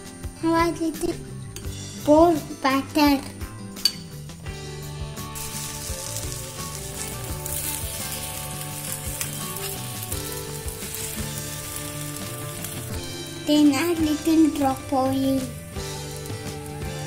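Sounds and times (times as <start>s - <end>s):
batter sizzling in hot oil: 4.8s - 17.0s.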